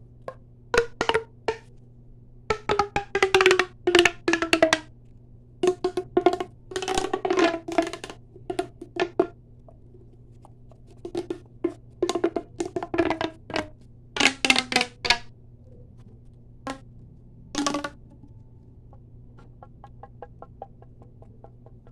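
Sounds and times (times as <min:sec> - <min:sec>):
fast tapping on hard objects: 0:00.2 - 0:01.7, 0:02.5 - 0:04.9, 0:05.6 - 0:15.3, 0:17.6 - 0:18.2, 0:19.0 - 0:21.9.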